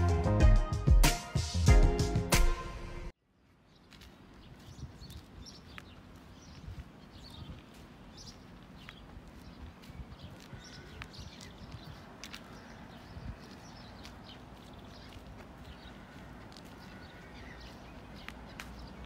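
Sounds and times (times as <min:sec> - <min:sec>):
background music: 0:00.0 - 0:03.1.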